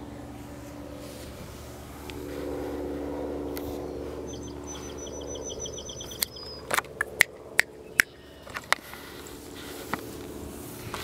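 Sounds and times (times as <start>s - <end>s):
low engine-like hum: 0.0s - 11.0s
songbird trill: 3.8s - 8.5s.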